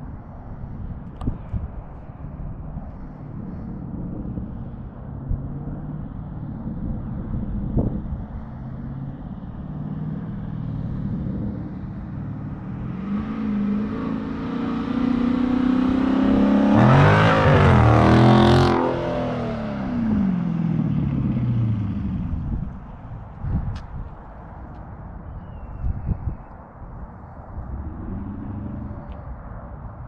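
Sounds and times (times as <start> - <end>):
car accelerating past: 8.7 - 22.7, 27.5 - 29.8.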